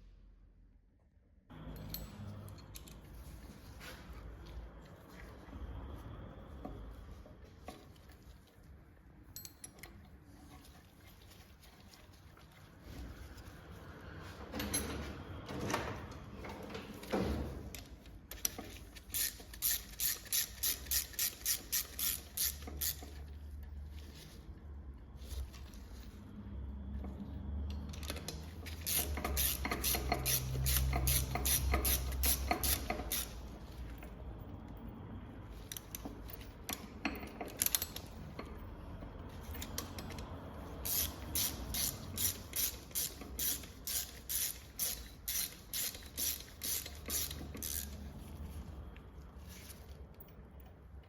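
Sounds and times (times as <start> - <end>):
ratchet wrench clicking: 19.0 - 23.2, 28.0 - 33.5, 39.6 - 48.0.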